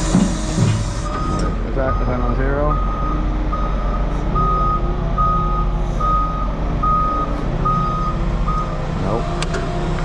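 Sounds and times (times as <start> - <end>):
vehicle engine rumble: 0.0 - 10.0
backup alarm beeping: 0.2 - 8.8.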